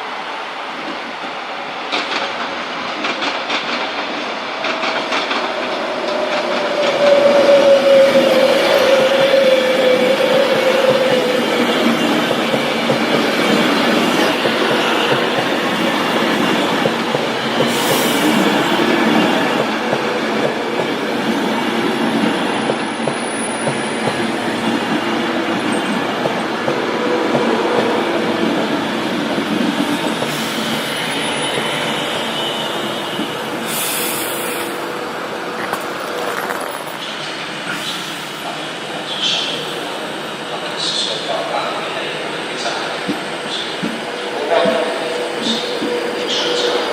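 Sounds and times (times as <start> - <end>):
train wheels rolling: 1.8 - 39.8
wheels squealing on rail: 5.8 - 19.6, 22.5 - 24.8, 29.8 - 41.2, 42.0 - 46.9.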